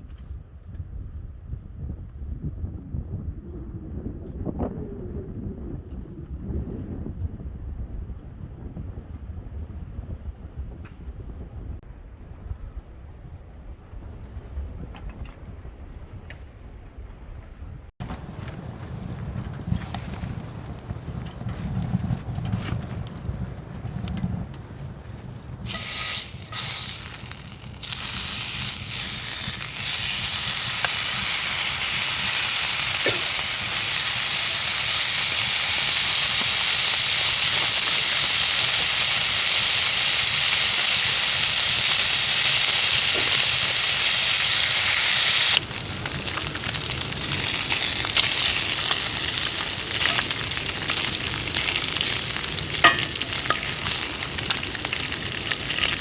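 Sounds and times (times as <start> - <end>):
sizzling hiss: 18.0 - 56.0.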